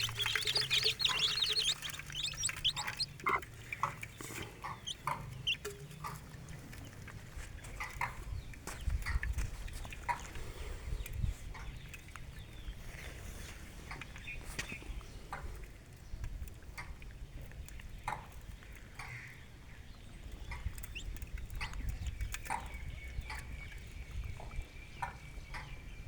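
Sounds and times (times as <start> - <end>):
soft chicken calls: 0.0 - 7.0
chickens pecking at ground: 0.0 - 25.8.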